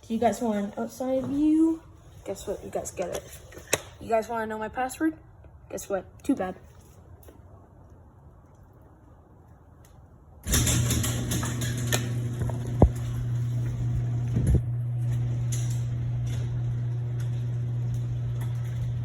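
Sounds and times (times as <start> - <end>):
garage door opener running: 10.4 - 19.0.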